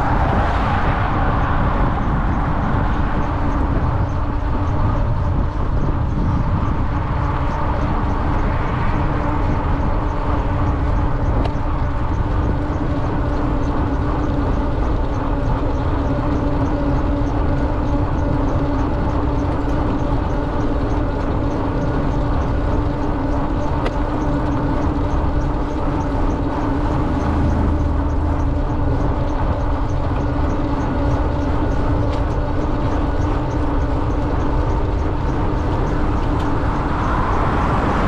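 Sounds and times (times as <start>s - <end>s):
wind rush: 0.0s - 19.4s, 23.0s - 38.0s
electric bike rolling noise: 0.0s - 38.0s
steady hum: 24.1s - 38.0s.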